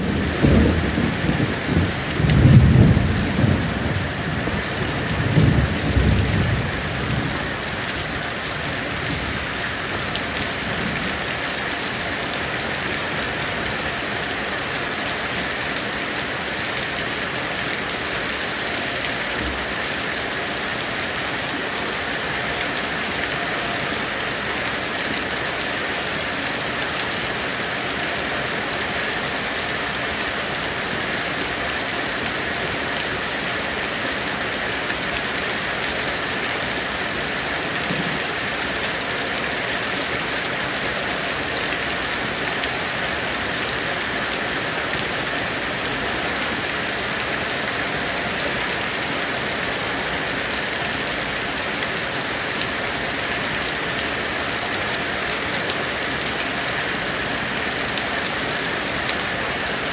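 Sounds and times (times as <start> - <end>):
thunder rumbling: 0.0 - 7.6
heavy rain falling: 0.0 - 59.9.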